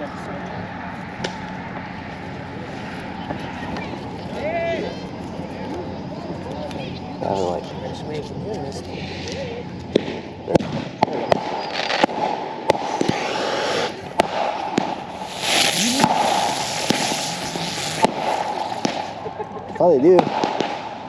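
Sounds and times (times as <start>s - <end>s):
fireworks hissing: 8.9s - 19.4s
fireworks popping and cracking: 9.1s - 21.0s.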